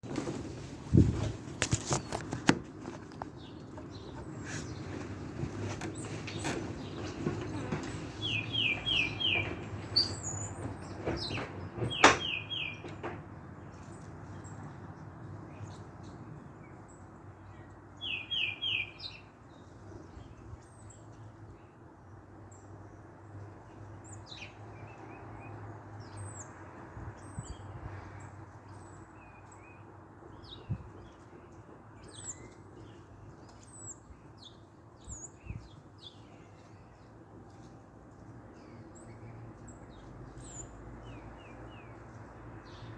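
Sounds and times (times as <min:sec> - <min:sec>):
small songbirds chirping: 0:00.0 - 0:42.9.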